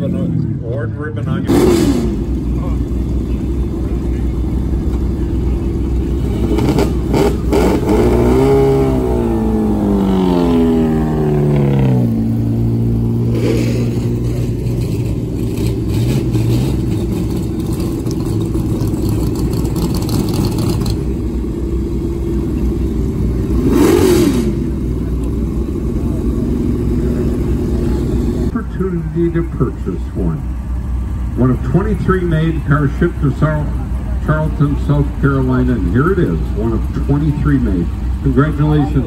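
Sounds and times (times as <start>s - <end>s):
car engine revving and idling: 0.0s - 39.0s.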